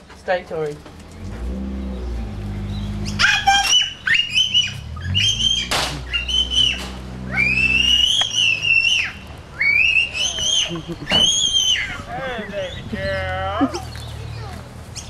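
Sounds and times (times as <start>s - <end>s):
vehicle engine running low: 0.6s - 11.3s
little girl squealing: 3.2s - 12.1s.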